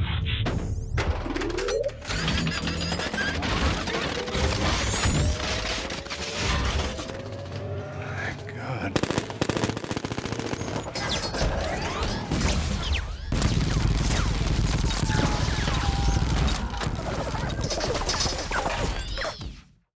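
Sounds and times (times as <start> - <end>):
rapid gunfire: 9.0 - 19.2.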